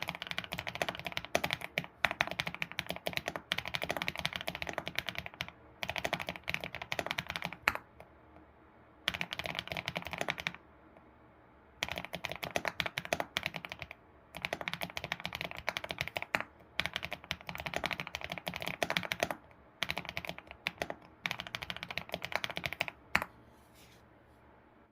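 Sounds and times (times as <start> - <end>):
keyboard typing: 0.0 - 8.1, 9.1 - 10.6, 11.8 - 23.3.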